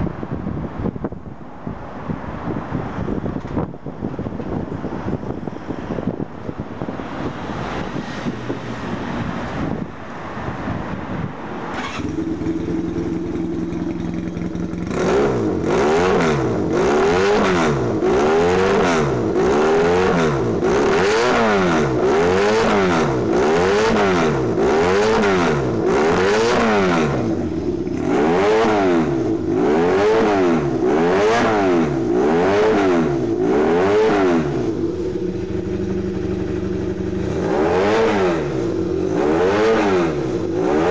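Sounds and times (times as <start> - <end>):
motorcycle engine revving: 11.7 - 40.9.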